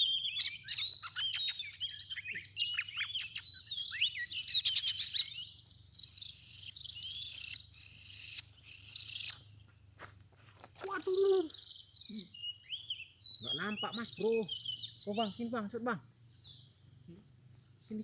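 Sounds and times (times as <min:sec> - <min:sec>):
bird singing whistles and chirps: 0:00.0 - 0:09.4, 0:11.0 - 0:15.5.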